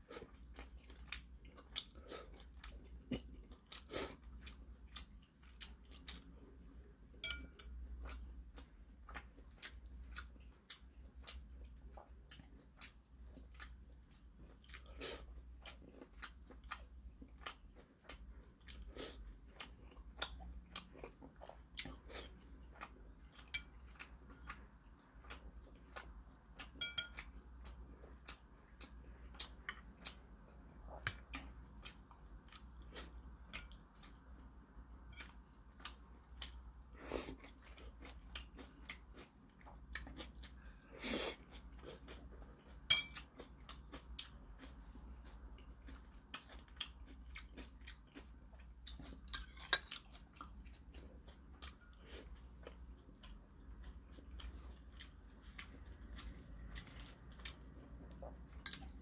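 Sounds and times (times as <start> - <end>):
person chewing: 0.0 - 59.0
chopsticks and spoon clicking bowl: 7.2 - 7.8, 26.6 - 27.3, 42.9 - 43.2.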